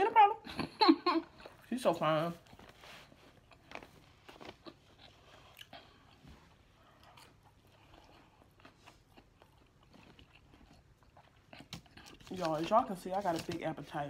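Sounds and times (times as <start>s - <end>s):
faint chewing: 2.3s - 13.6s.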